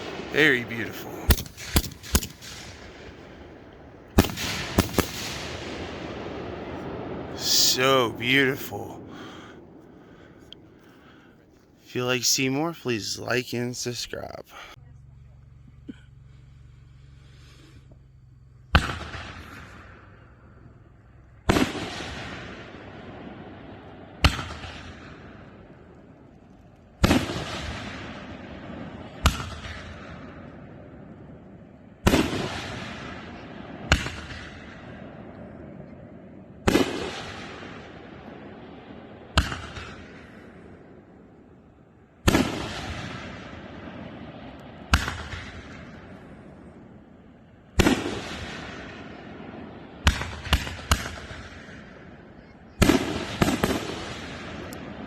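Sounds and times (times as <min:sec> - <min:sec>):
fireworks boom: 0:00.0 - 0:11.2
fireworks sharp reports: 0:00.0 - 0:14.8, 0:36.6 - 0:38.0, 0:42.2 - 0:46.8, 0:47.8 - 0:55.0.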